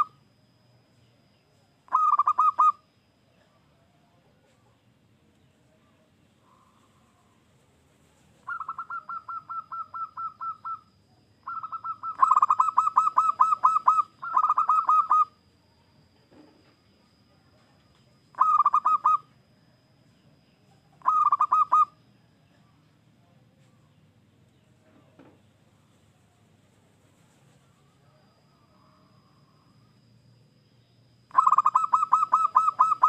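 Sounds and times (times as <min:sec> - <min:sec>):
dove cooing: 0:01.9 - 0:02.9, 0:08.4 - 0:15.5, 0:18.3 - 0:19.3, 0:21.0 - 0:22.0, 0:31.3 - 0:33.0.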